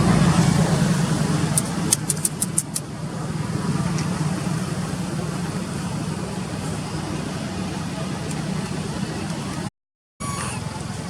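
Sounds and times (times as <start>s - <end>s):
vehicle engine hum: 0.0s - 11.0s
sharp clicks: 1.6s - 2.9s.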